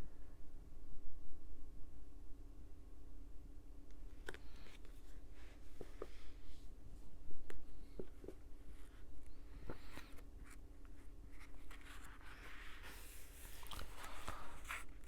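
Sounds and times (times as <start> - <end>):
faint steady hum: 0.0 - 15.0
book pages rustling: 7.8 - 15.0.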